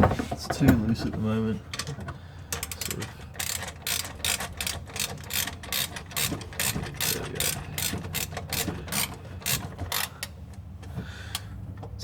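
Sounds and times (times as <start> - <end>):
ratchet spanner clicking: 2.5 - 10.4.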